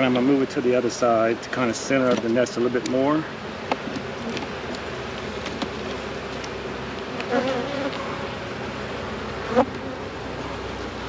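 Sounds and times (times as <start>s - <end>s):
honeybees buzzing: 0.0s - 11.0s
bee buzzing close by: 4.0s - 11.0s.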